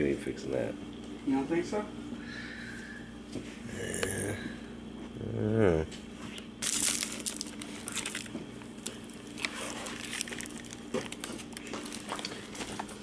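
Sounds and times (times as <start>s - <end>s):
foam crinkling and crunching: 6.6s - 13.0s.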